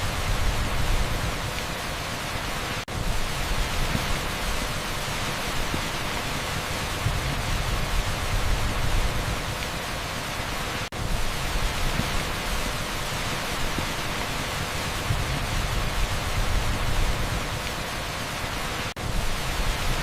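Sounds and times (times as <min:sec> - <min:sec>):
heavy rain on asphalt: 0:00.0 - 0:20.0.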